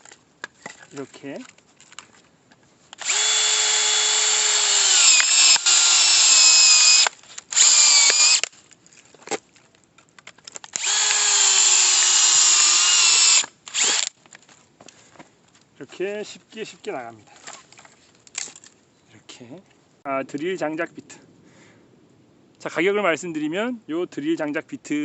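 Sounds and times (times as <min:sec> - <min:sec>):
hammer drill whining into log: 0:02.9 - 0:08.5, 0:10.7 - 0:14.2.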